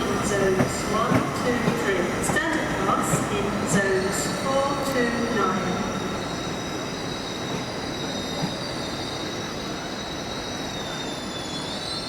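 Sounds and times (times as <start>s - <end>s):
low rumble of moving train: 0.0s - 12.0s
train wheel flange squeal: 2.5s - 12.0s.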